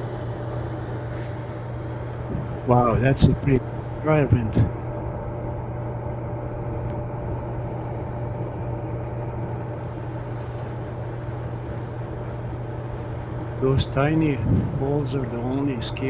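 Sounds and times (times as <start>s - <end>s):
low machine hum: 0.0s - 16.0s
rush of air: 13.8s - 15.0s.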